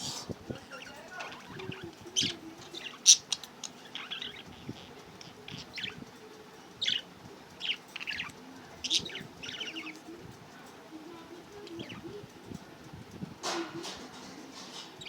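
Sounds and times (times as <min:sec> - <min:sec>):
budgerigars chirping: 0:00.8 - 0:06.0, 0:06.8 - 0:10.0.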